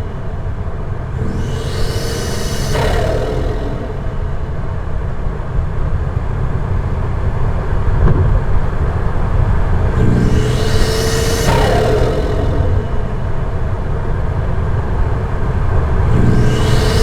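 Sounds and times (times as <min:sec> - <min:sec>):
car engine low rumble: 0:00.0 - 0:17.0
turbo flutter whoosh: 0:01.1 - 0:05.6, 0:09.9 - 0:14.8, 0:16.0 - 0:17.0.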